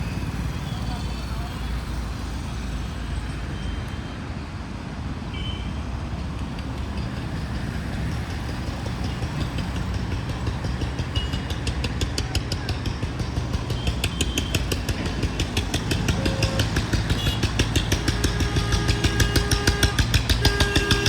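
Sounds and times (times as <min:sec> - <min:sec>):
traffic rumble: 0:00.0 - 0:21.0
fast even ticking: 0:08.3 - 0:21.0.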